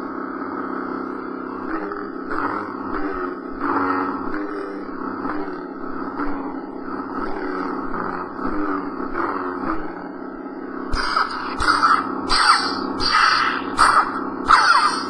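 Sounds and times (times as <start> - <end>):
lightsaber hum: 0.0 - 15.0
lightsaber clash hits: 11.0 - 15.0.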